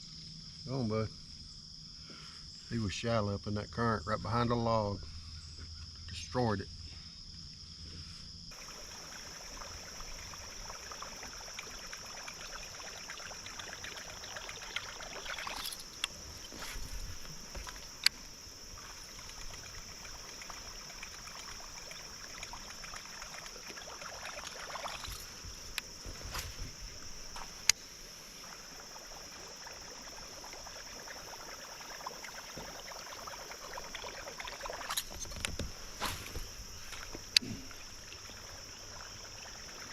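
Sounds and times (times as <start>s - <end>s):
crickets chirring: 0.0s - 39.9s
creek water trickling: 8.5s - 39.9s.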